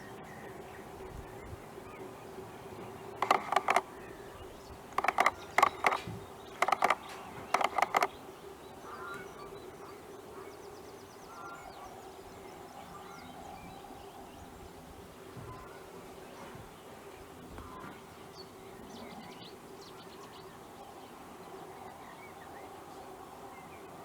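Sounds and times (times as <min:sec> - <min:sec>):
faint bird calls: 0:03.2 - 0:04.0, 0:05.0 - 0:08.2.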